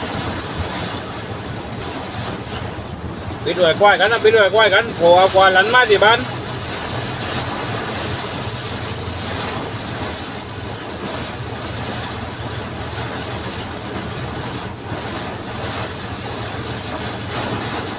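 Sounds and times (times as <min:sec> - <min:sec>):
heavy rain and wind: 0:00.0 - 0:17.9.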